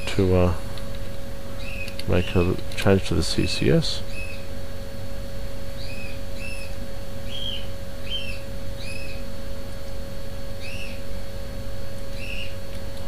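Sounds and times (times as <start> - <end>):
steady low hum: 0.0 - 13.0
bird chirping: 1.6 - 2.0, 4.1 - 4.5, 5.8 - 9.2, 10.6 - 11.0, 12.1 - 12.6.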